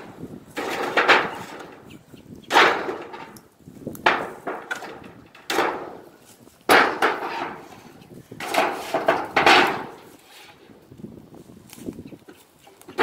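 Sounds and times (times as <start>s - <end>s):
sharp knocks and bangs on wood: 0.0s - 1.8s, 2.5s - 3.4s, 4.0s - 6.1s, 6.7s - 7.8s, 8.4s - 10.1s.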